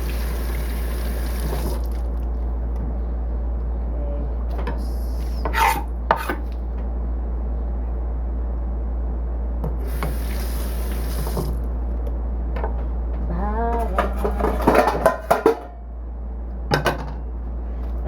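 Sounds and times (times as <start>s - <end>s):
steady low hum: 0.0s - 18.0s
utensils knocking and clattering: 13.8s - 15.8s.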